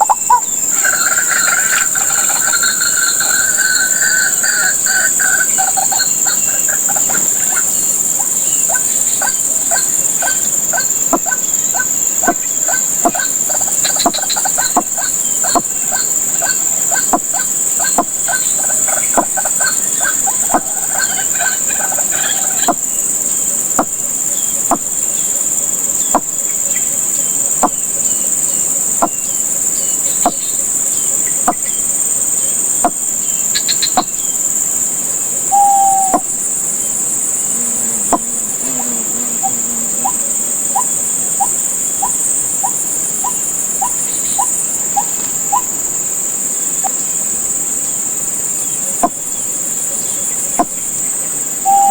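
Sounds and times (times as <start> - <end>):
bird calling repeated notes: 0.0 - 22.8, 35.5 - 36.4, 51.7 - 51.9
insects droning: 0.0 - 51.9.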